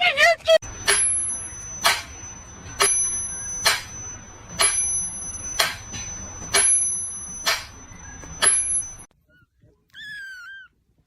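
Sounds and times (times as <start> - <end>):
small bell ringing: 0.7 - 9.1.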